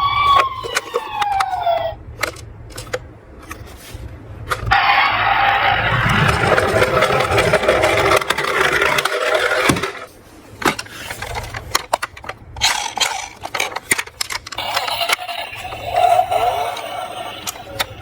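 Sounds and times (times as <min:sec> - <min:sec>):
toy cars clattering together: 0:00.0 - 0:03.7, 0:04.5 - 0:18.0
toy cars rolling down a slope: 0:04.7 - 0:10.1, 0:10.8 - 0:18.0.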